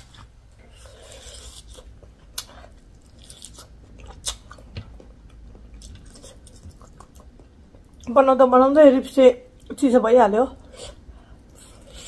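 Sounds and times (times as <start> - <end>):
crunching and wet chewing: 0.0 - 8.1.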